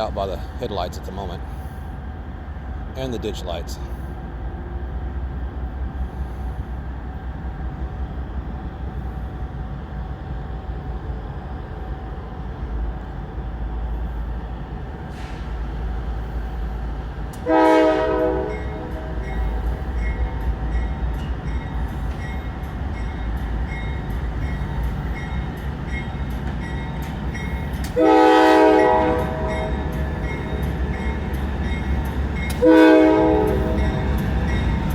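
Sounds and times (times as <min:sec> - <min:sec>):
train rumbling past: 0:00.0 - 0:34.9
train air horn blasts: 0:17.4 - 0:19.6, 0:27.9 - 0:30.1, 0:32.5 - 0:34.2.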